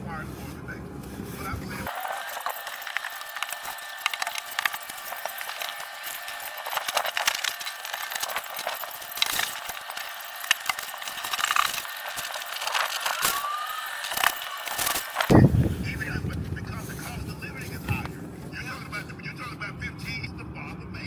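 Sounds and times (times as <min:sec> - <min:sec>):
hand tools clinking on metal: 0:01.8 - 0:15.4.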